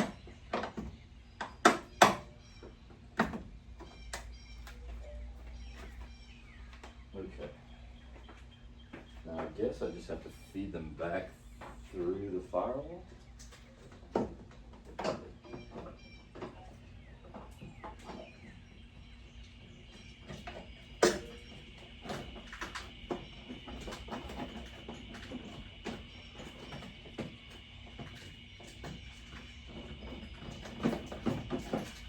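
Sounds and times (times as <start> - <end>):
cables clicking and rattling: 19.5 - 32.0.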